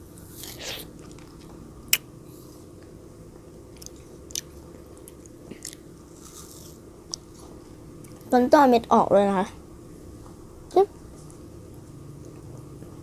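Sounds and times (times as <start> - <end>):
child chewing crunchy grapes: 0.3 - 2.0, 3.7 - 8.3.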